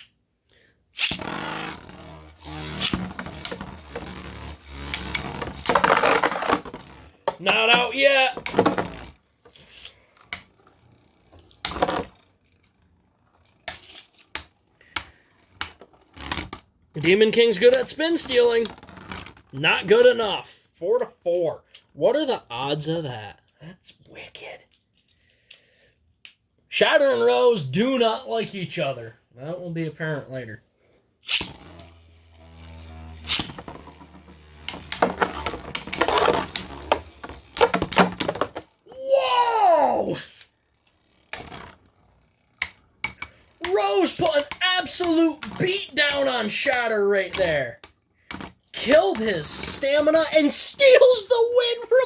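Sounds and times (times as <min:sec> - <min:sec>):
spinning tops clashing and scraping: 0:01.0 - 0:19.6, 0:31.2 - 0:52.0
faint grinding: 0:01.1 - 0:19.6, 0:29.7 - 0:38.9, 0:39.9 - 0:50.6.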